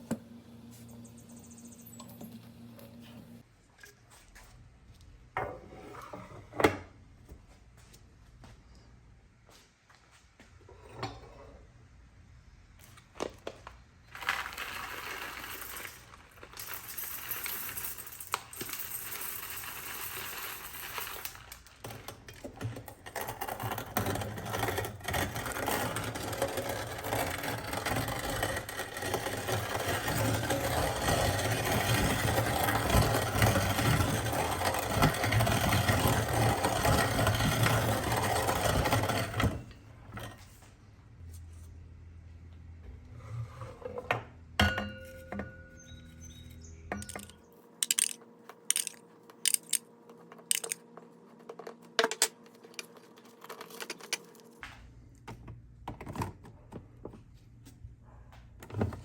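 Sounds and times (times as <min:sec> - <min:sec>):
coffee grinder crunching: 0:14.1 - 0:21.9, 0:23.2 - 0:39.3, 0:47.0 - 0:49.8, 0:50.4 - 0:50.9.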